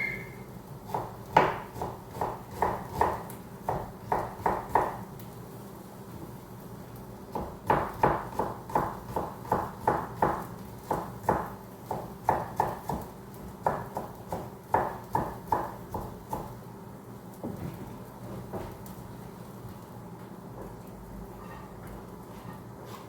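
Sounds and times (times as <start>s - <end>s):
knife chopping on cutting board: 0.9s - 5.0s, 7.3s - 16.6s.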